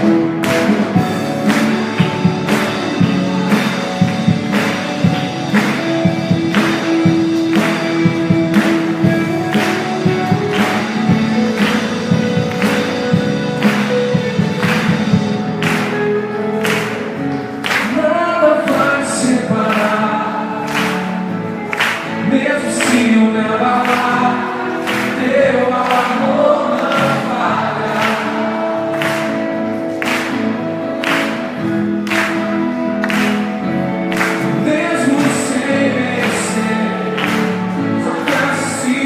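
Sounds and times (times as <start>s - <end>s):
drums and cymbals: 0.0s - 16.1s
band playing worship music: 0.0s - 39.0s
people singing together: 17.8s - 29.8s, 34.4s - 39.0s.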